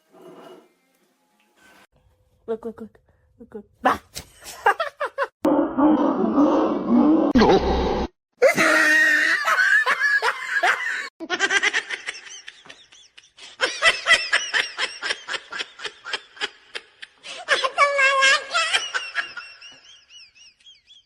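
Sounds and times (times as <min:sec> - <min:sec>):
high-pitched laughter: 0:08.4 - 0:21.0.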